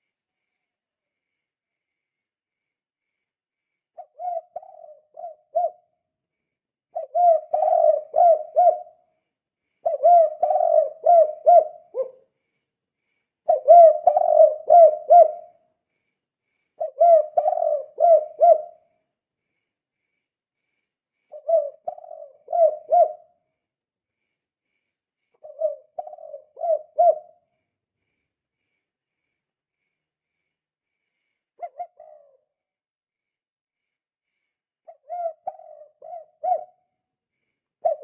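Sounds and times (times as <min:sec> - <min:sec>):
dove cooing: 0:04.0 - 0:05.9, 0:07.0 - 0:09.0, 0:09.8 - 0:12.2, 0:13.5 - 0:15.6, 0:16.8 - 0:18.8, 0:21.3 - 0:23.4, 0:25.4 - 0:27.4, 0:31.6 - 0:32.5, 0:34.9 - 0:36.8, 0:37.8 - 0:38.0.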